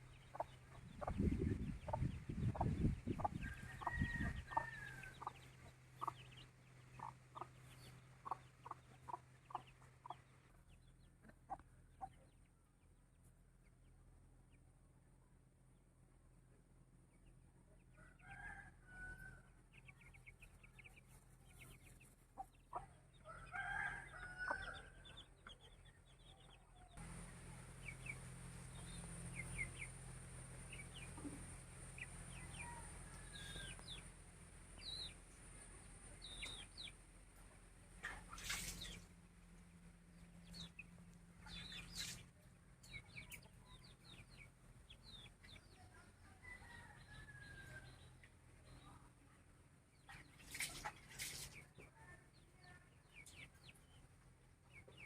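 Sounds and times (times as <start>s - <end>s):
chickens clucking: 0.0s - 12.5s, 19.8s - 23.2s, 24.4s - 47.6s.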